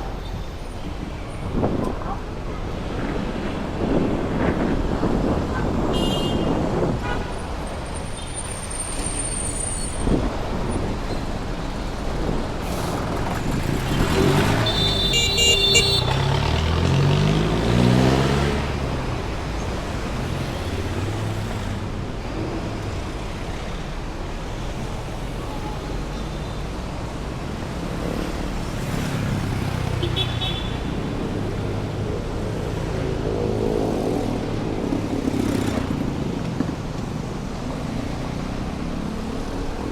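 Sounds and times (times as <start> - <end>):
city traffic passing: 0.0 - 39.9
car horn: 5.9 - 7.4, 14.6 - 16.3, 30.0 - 31.0
vehicle engine revving: 12.6 - 15.1, 16.0 - 19.1.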